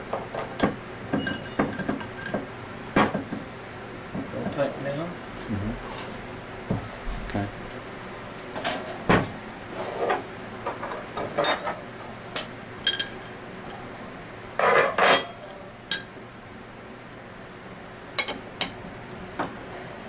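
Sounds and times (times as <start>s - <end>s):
metal tools clinking: 11.4s - 11.9s.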